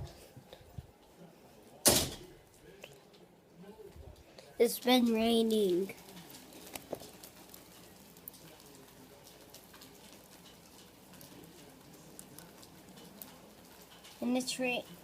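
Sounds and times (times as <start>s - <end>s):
faint steady rain: 0.0s - 15.0s
raindrops ticking: 4.6s - 15.0s.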